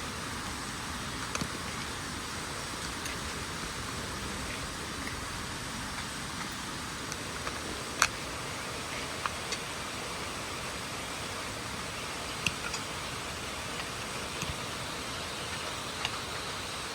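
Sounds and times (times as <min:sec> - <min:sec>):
steady hiss: 0:00.0 - 0:16.9.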